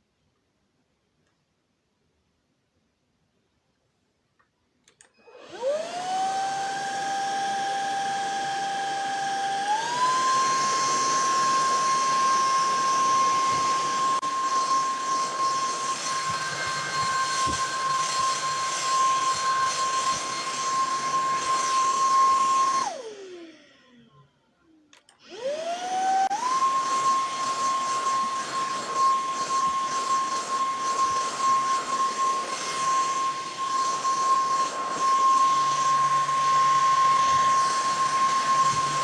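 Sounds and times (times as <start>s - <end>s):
stick vacuum cleaner motor whine: 5.1s - 24.2s, 25.0s - 39.0s.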